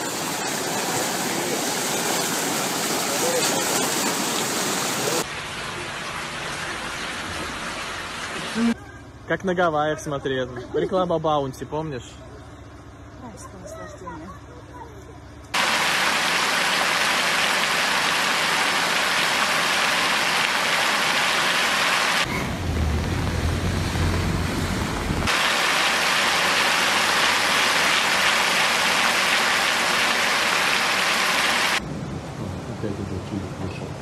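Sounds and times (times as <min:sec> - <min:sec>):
heavy rain hiss: 0:00.0 - 0:08.8, 0:15.6 - 0:31.8
deep rumbling noise: 0:22.2 - 0:25.3.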